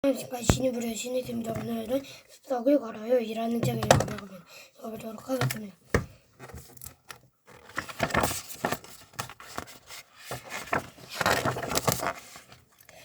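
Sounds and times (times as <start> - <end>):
paper pages rustling: 7.5 - 12.8.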